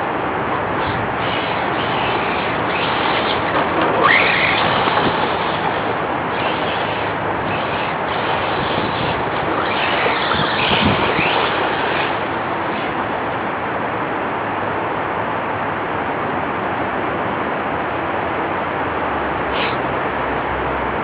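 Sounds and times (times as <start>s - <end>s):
steady rushing noise: 0.0s - 21.0s
electric motor whining: 0.5s - 13.0s.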